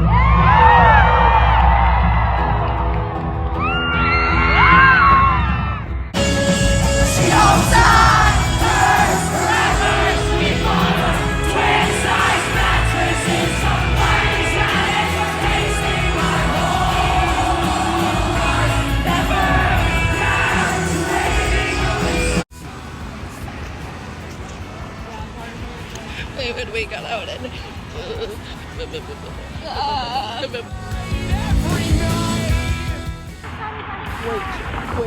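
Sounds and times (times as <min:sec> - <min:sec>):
crowd yelling and whooping: 0:00.0 - 0:22.4
lead singer singing: 0:06.2 - 0:22.4, 0:30.2 - 0:33.0
live band playing: 0:06.2 - 0:22.4, 0:29.9 - 0:33.4
crowd singing along: 0:06.2 - 0:24.5, 0:26.2 - 0:35.0.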